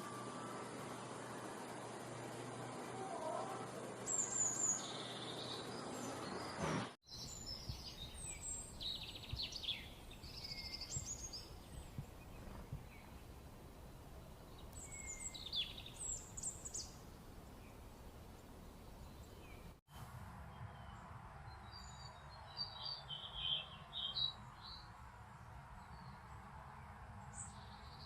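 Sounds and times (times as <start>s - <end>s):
birds chirping and trilling: 0.0s - 13.5s, 14.2s - 19.8s
steady background hiss: 7.1s - 20.2s.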